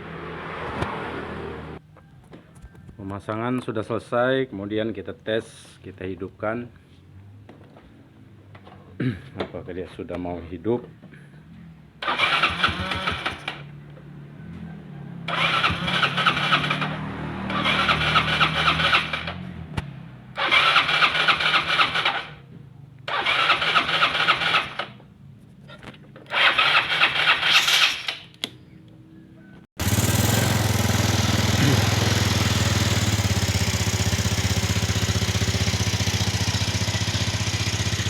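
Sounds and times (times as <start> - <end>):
scooter engine running: 12.0 - 13.7, 14.5 - 19.4, 29.8 - 38.0
scooter engine cranking: 12.0 - 13.8, 15.3 - 19.5, 20.4 - 22.4, 23.1 - 25.0, 26.2 - 28.5, 29.8 - 38.0.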